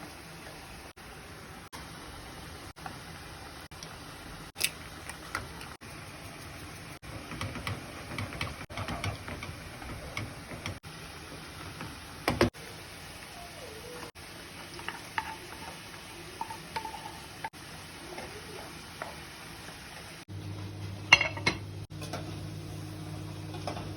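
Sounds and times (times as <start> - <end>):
utensils clicking and tapping: 7.0 - 10.8.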